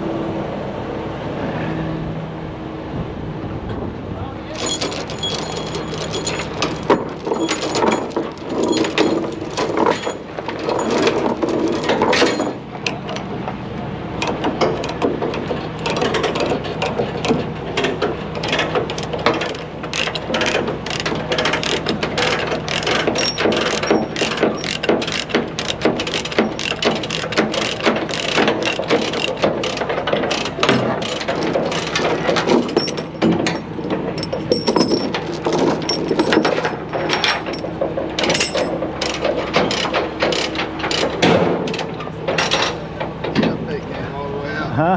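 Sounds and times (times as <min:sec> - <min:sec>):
ratchet clicking rapidly: 0:20.0 - 0:33.0.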